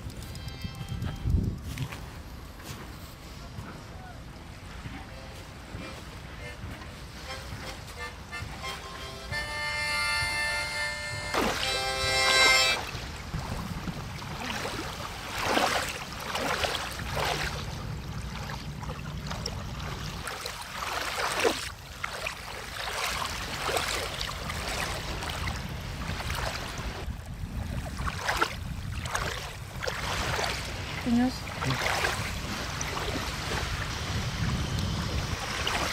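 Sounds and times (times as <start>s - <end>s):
water sloshing and splashing: 1.6s - 7.2s, 11.3s - 35.9s
low steady rumble: 12.9s - 21.0s.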